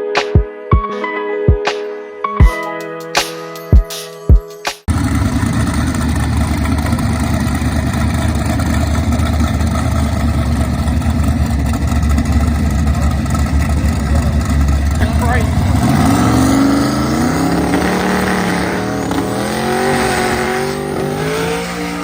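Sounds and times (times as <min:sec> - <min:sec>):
drag car engine idling: 0:04.9 - 0:20.4.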